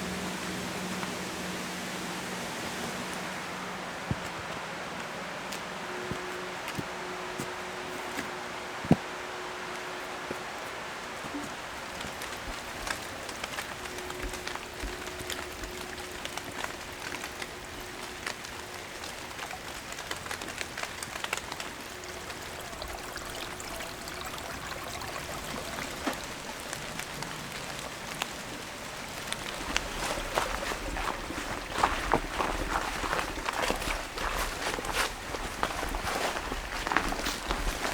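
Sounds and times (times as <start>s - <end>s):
light ticks and patters: 0.0s - 37.9s
steady hiss: 0.0s - 37.9s.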